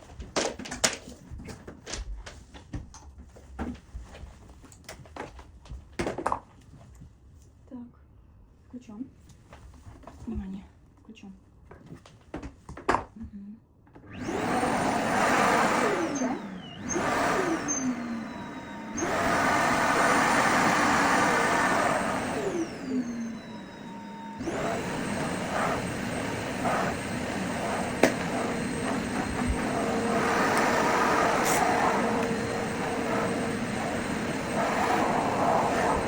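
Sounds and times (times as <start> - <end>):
vacuum cleaner motor whining: 14.0 - 36.0.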